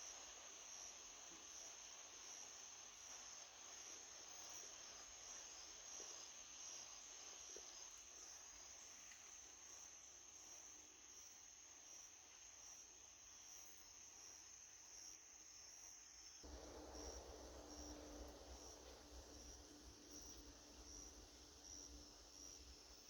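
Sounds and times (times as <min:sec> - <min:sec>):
crickets trilling: 0:00.0 - 0:23.0
faint pulsing chirp: 0:16.4 - 0:23.0.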